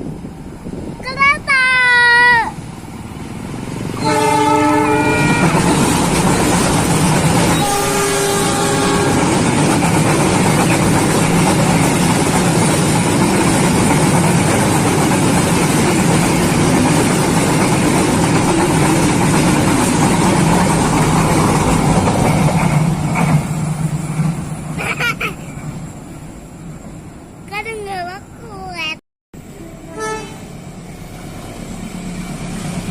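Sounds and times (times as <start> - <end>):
train passing with loud rumble: 0.0 - 32.9
train horn: 4.0 - 5.9, 7.5 - 9.4, 29.5 - 30.5.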